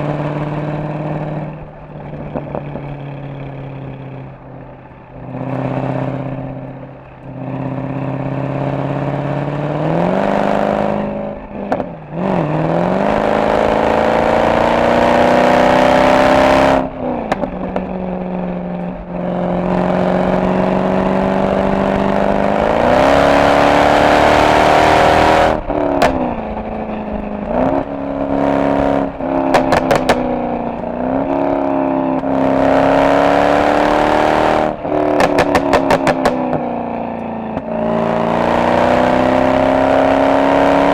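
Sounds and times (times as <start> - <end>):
car exhaust accelerating hard: 0.0 - 40.9
exhaust pops and crackles: 1.3 - 7.4, 16.8 - 19.2, 25.5 - 28.3, 29.0 - 31.0, 34.8 - 37.8.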